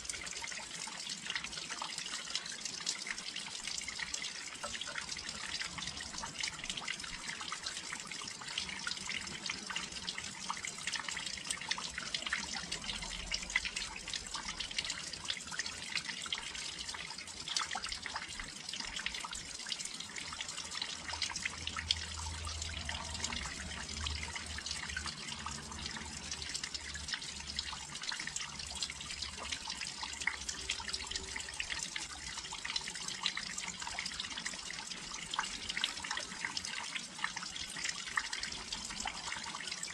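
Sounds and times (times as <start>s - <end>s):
rain pattering and splashing: 8.2s - 15.7s.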